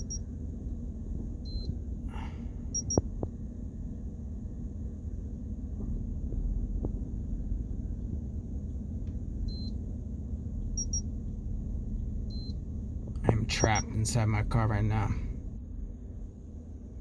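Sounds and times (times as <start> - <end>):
car cabin rumble: 0.0 - 9.5, 10.5 - 16.6
high electronic beep: 13.3 - 14.2.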